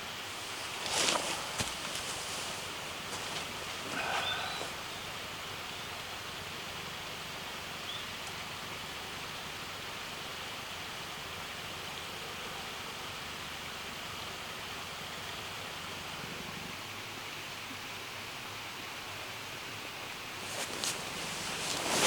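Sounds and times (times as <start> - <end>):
faint chirp: 3.9 - 6.0.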